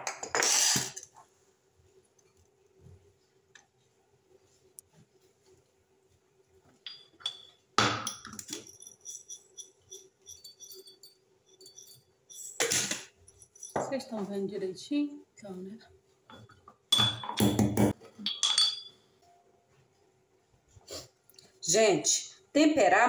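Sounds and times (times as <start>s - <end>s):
light metallic clinks: 6.8s - 12.6s, 13.2s - 13.9s, 18.2s - 19.0s.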